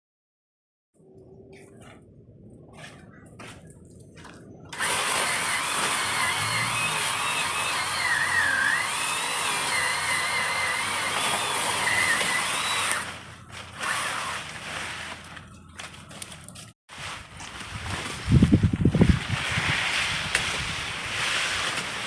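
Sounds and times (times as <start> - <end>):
power saw cutting branches: 4.7 - 16.3, 17.5 - 22.0.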